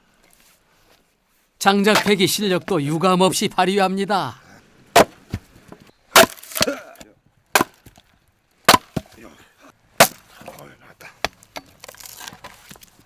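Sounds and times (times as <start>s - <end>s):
wood cracking: 4.9s - 9.2s, 11.2s - 13.0s
axe blows splitting wood: 6.1s - 6.8s, 7.5s - 7.8s, 8.7s - 9.1s, 10.0s - 10.3s.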